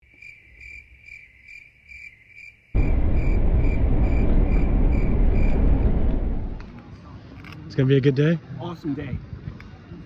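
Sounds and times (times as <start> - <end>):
cricket chirping: 0.0 - 6.4
loud low rumbling: 2.8 - 6.8.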